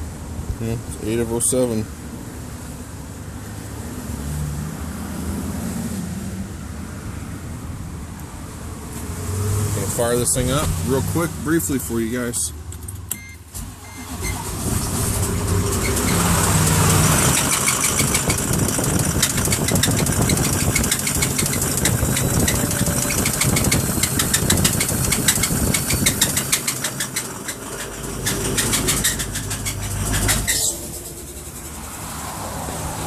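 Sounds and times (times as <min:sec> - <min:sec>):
diesel engine heavy knocking: 0:14.6 - 0:32.2.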